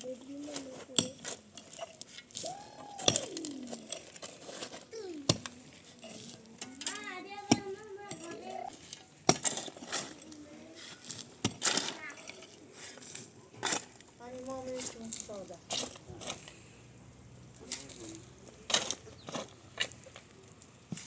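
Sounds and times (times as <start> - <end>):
sharp clinks of hard objects: 3.0 - 4.4
child's voice calling: 4.9 - 5.3.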